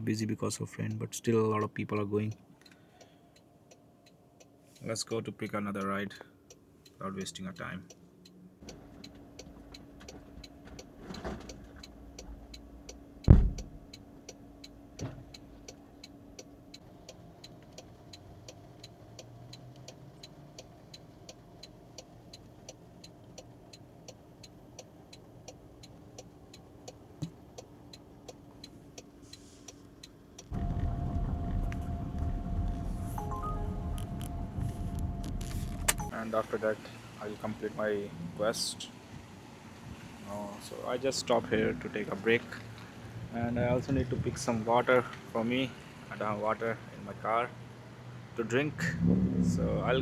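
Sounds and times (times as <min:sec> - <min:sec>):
car indicator ticking: 0:11.8 - 0:36.1
loud thump: 0:13.3 - 0:13.8
steady rushing noise: 0:30.5 - 0:36.1
faint cabin hum: 0:30.5 - 0:38.0.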